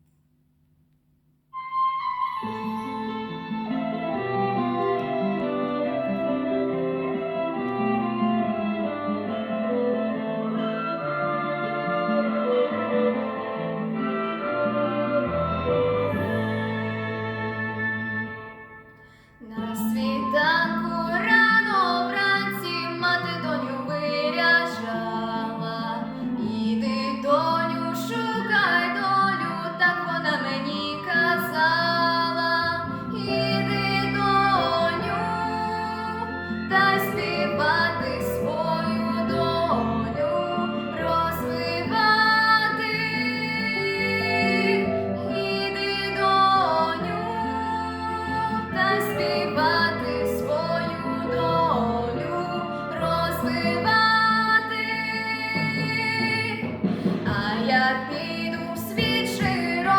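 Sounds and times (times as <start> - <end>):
instrumental accompaniment: 1.5 - 59.9
woman singing: 19.4 - 59.9.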